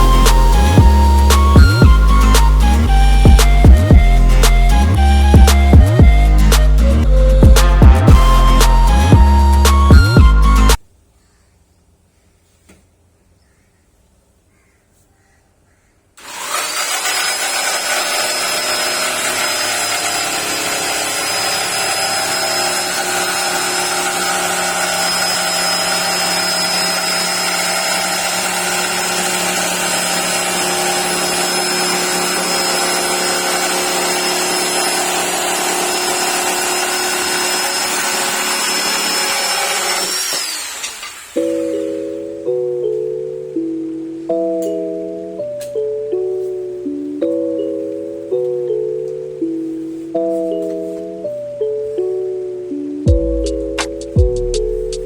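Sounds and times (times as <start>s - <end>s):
electric jigsaw motor whine: 0.0s - 3.9s, 16.2s - 41.9s.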